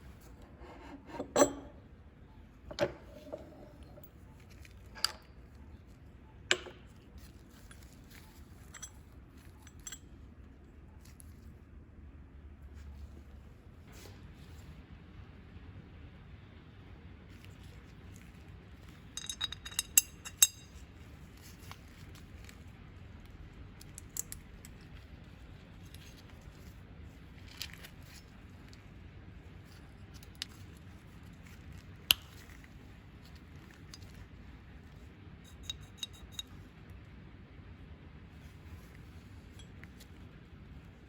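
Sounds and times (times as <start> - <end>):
small metal parts clinking: 6.5 - 10.2, 18.8 - 22.7, 34.9 - 36.6.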